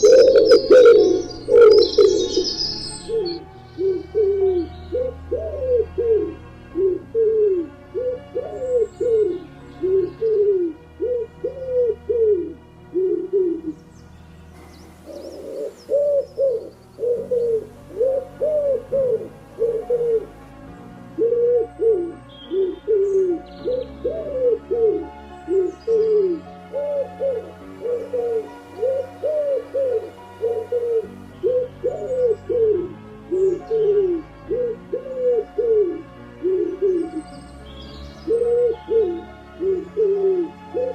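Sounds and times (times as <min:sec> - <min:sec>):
faint high bird chirps: 0:00.0 - 0:03.4
birds calling in low arched notes: 0:00.0 - 0:40.9.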